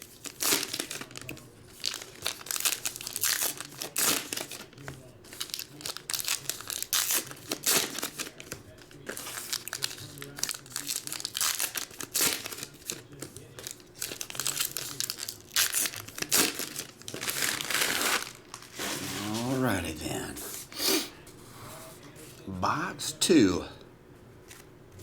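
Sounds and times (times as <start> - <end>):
foil wrappers crinkling and tearing: 0.0 - 19.6.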